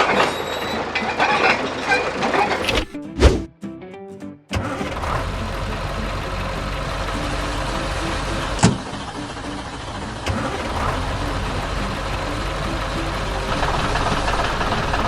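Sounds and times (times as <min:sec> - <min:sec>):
sharp clank: 0:00.0 - 0:03.5
vehicle engine running: 0:04.6 - 0:15.0.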